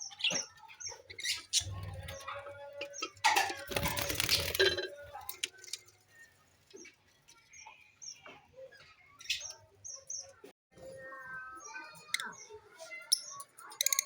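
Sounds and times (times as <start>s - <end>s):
lovebirds chirping: 0.0s - 10.5s.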